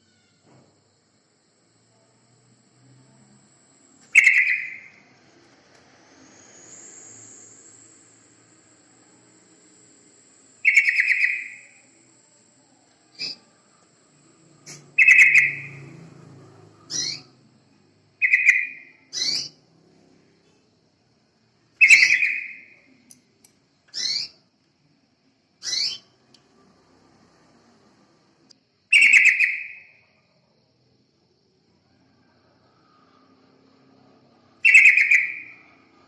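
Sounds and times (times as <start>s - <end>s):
bulbul chirping calls: 4.1s - 5.0s, 10.6s - 11.8s, 14.6s - 15.8s, 18.2s - 19.6s, 21.8s - 22.8s, 28.9s - 29.9s, 34.6s - 35.7s.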